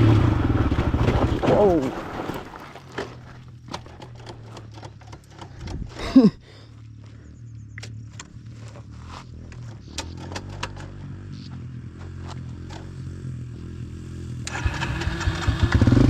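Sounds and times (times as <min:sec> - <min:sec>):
dirt bike engine idling: 0:02.9 - 0:16.0
light clicks and rattles: 0:03.0 - 0:06.1.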